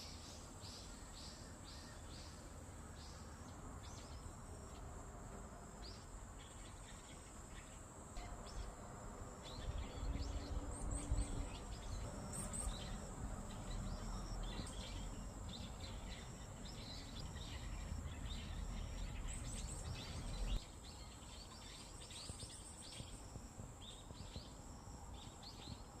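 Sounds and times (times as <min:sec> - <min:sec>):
high-pitched insect trill: 0:03.2 - 0:26.0
small birds chirping: 0:05.8 - 0:26.0.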